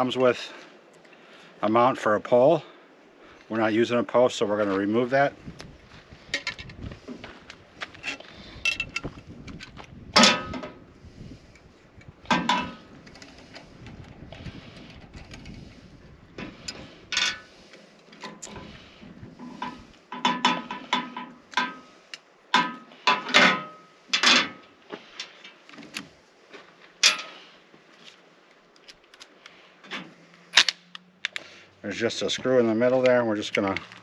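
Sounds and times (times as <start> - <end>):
metal parts clinking: 8.0 - 9.1, 17.1 - 17.5, 27.0 - 27.4.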